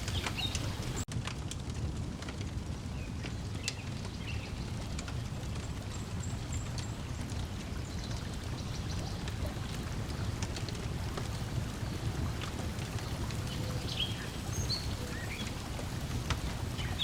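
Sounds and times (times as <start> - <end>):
bird chirps: 0.0 - 1.0
lake water lapping: 0.0 - 1.1, 7.6 - 17.0
wood fire crackling: 0.0 - 17.0.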